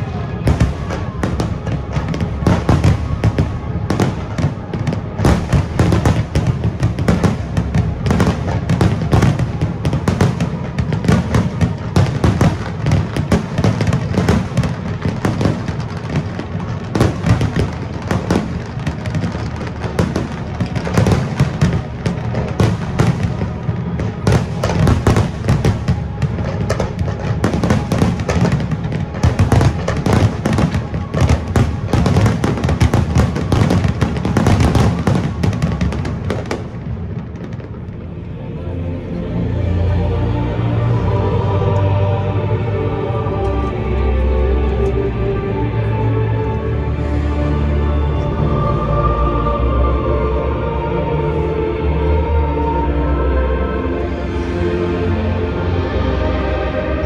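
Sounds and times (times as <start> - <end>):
fireworks bangs and crackles: 0.0 - 38.5
music playing: 0.0 - 57.0.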